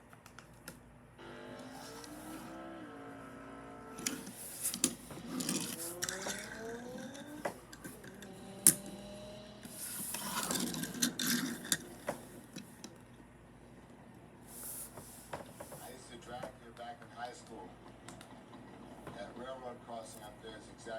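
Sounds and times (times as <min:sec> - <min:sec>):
engine revving: 0:01.2 - 0:11.6.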